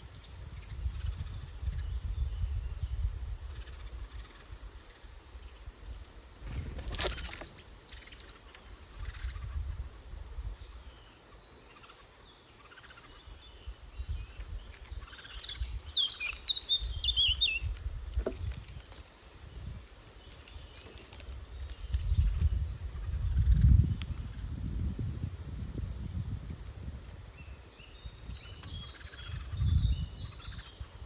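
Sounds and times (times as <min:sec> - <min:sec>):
songbird singing high notes: 0:12.6 - 0:17.7.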